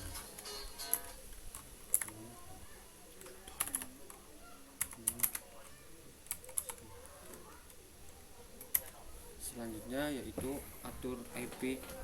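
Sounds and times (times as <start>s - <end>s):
faint voices: 0.0s - 12.0s
typing on computer keyboard: 0.9s - 2.2s, 3.2s - 4.2s, 4.8s - 5.5s, 6.3s - 7.4s.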